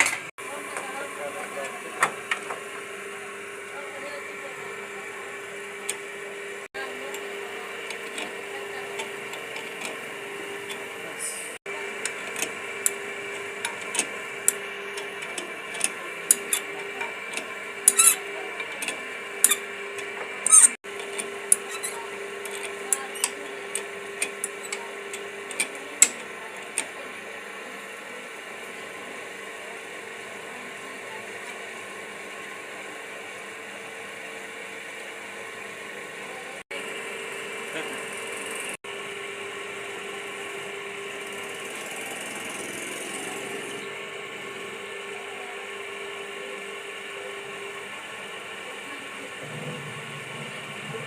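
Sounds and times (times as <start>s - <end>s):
hand tools clicking on metal: 13.6s - 26.9s.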